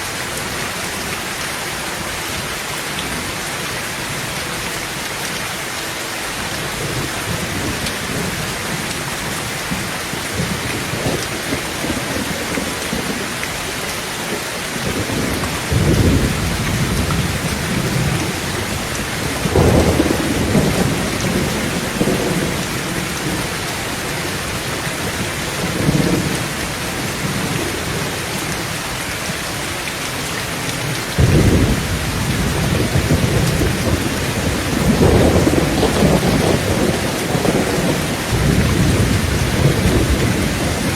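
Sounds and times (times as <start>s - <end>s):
heavy rain on a tin roof: 0.0s - 40.9s
low thunder rumbles: 14.8s - 28.6s, 31.2s - 40.9s.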